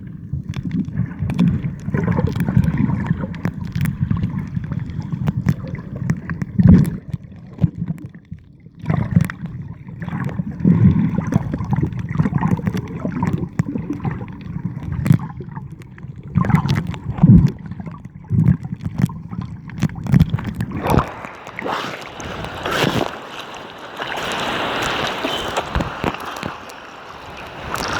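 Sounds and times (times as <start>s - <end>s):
sea water rushing and hissing: 20.5s - 27.9s.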